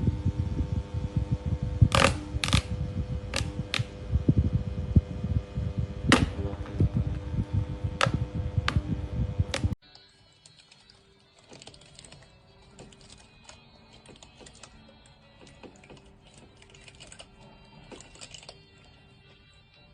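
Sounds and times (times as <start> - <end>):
quiet background music: 0.0 - 19.9.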